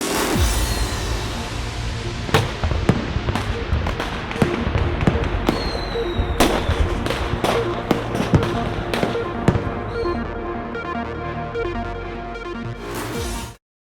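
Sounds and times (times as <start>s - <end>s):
firework bangs: 0.7s - 10.2s.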